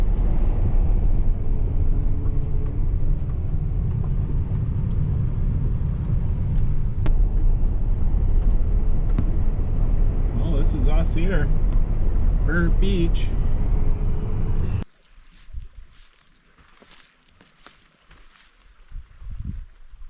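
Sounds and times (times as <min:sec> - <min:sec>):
faint engine tones: 0:00.0 - 0:14.8
car driving rumble: 0:00.0 - 0:14.9.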